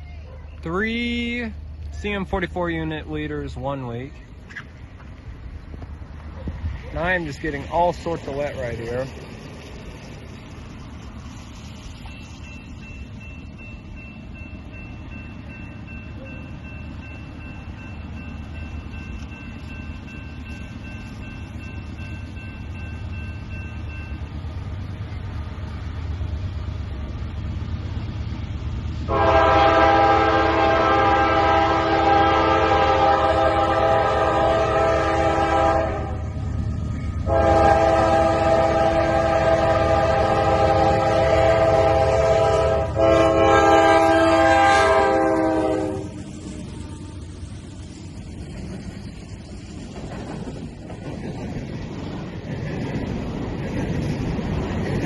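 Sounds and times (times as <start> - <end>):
locomotive rumble: 0.0 - 55.0
train air horn blast: 29.1 - 36.2, 37.2 - 47.3.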